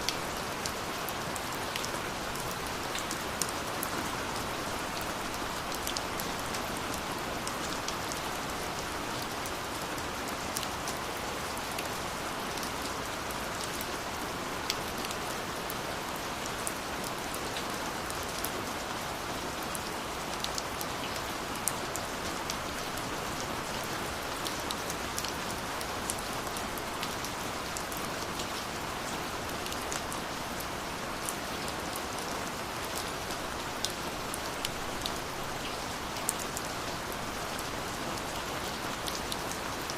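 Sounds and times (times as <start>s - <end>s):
steady rainfall hiss: 0.0s - 39.9s
raindrops ticking on surface: 19.7s - 39.9s.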